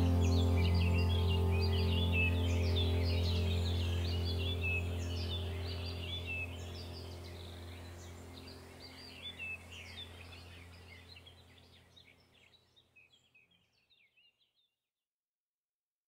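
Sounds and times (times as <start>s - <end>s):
low steady drone: 0.0s - 12.0s
small birds chirping: 0.0s - 14.7s.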